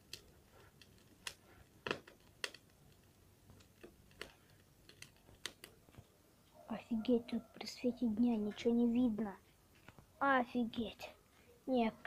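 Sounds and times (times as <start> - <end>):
campfire crackling: 0.0 - 6.6.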